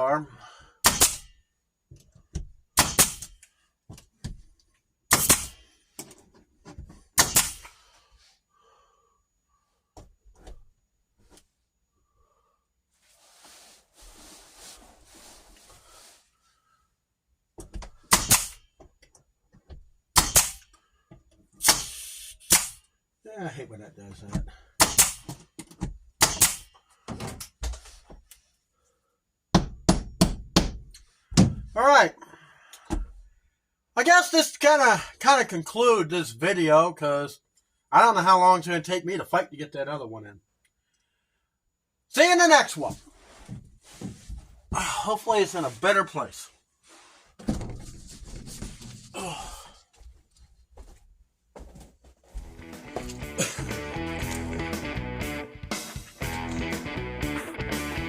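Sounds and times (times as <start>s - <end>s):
staple gun shots: 0.8s - 1.3s, 2.8s - 3.4s, 5.1s - 5.6s, 7.2s - 7.7s, 18.1s - 18.6s, 20.2s - 20.7s, 21.6s - 22.8s, 24.8s - 25.3s, 26.2s - 26.7s.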